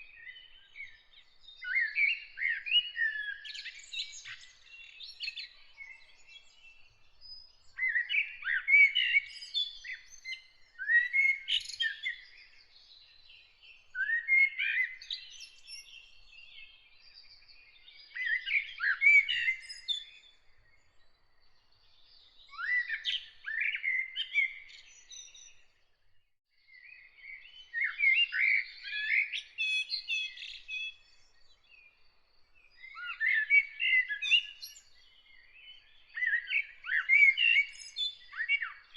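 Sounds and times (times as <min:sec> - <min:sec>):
faint bird chirps: 0:00.0 - 0:38.9.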